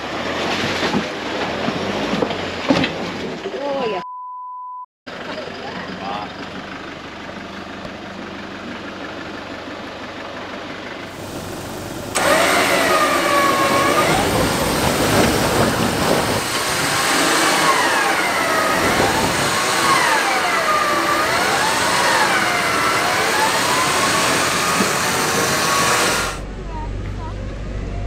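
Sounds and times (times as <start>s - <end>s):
vehicle engine revving: 10.4s - 28.0s
loud steady rushing noise: 11.2s - 28.0s.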